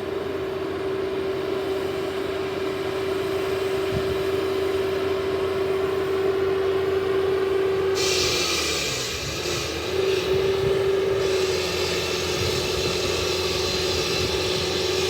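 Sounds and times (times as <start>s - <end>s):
concrete saw cutting asphalt: 7.6s - 15.0s.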